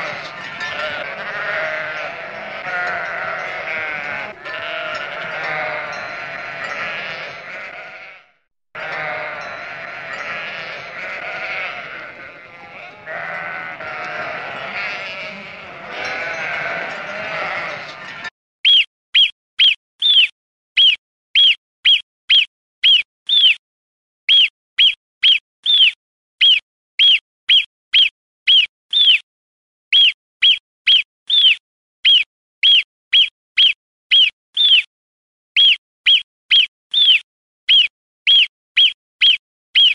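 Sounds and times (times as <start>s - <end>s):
sheep bleating: 0.0s - 18.3s.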